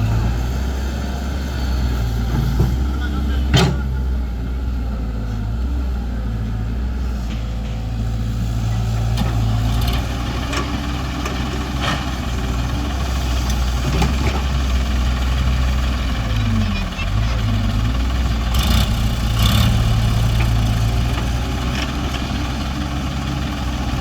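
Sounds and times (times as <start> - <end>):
diesel tractor engine running: 0.0 - 24.0.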